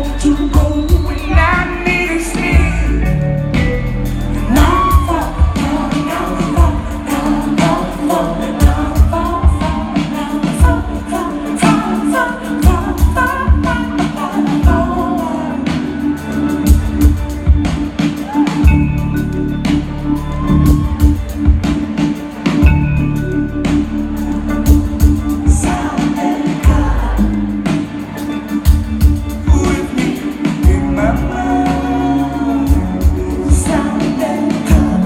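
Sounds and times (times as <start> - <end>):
woman singing: 0.0 - 3.1, 4.4 - 16.3, 25.3 - 27.8, 29.4 - 35.0
drums beating: 0.0 - 35.0
live rock band playing: 0.0 - 35.0.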